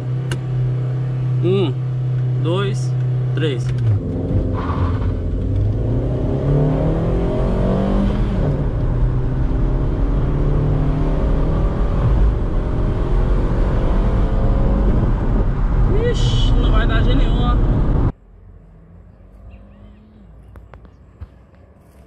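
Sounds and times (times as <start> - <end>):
engine accelerating through gears: 0.0 - 15.9.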